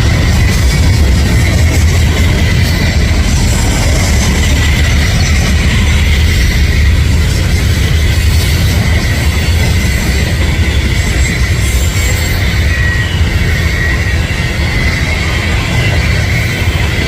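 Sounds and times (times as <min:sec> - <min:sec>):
high wheel squeal: 0:00.0 - 0:17.0
train cars rumbling on rails: 0:00.0 - 0:17.0.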